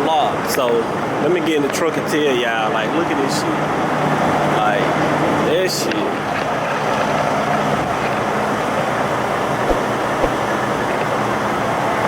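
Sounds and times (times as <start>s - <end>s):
light knocks: 9.6s - 10.6s.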